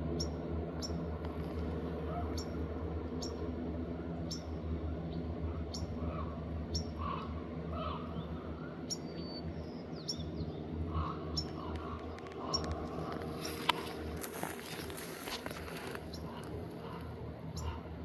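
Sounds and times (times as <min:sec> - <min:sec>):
steady low hum: 0:00.0 - 0:18.0
softer lower bird calls: 0:05.5 - 0:12.8.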